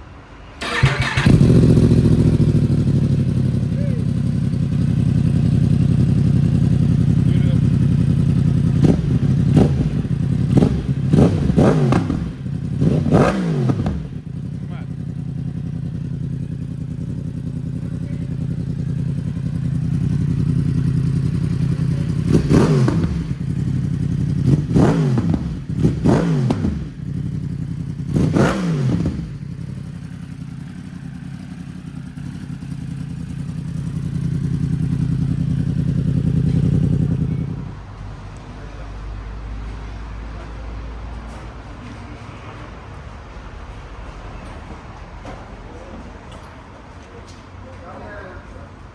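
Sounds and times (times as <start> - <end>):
motorcycle engine blipped: 0.6 - 37.8
motorcycle engine idling: 0.6 - 40.6.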